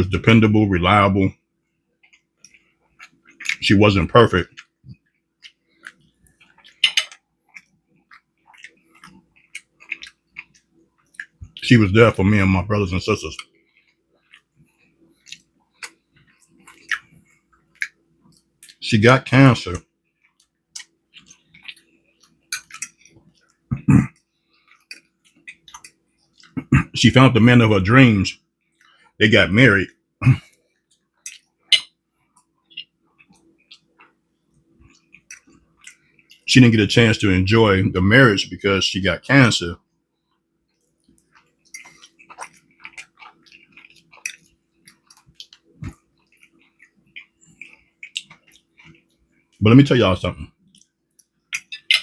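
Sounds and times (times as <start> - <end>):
faint steady hum: 0.0 - 52.0
person chewing: 2.0 - 3.6, 4.3 - 11.6, 12.8 - 18.8, 19.8 - 26.9, 30.2 - 36.5, 40.2 - 49.6, 50.6 - 52.0
wet mouth clicks: 40.8 - 49.1, 50.7 - 52.0.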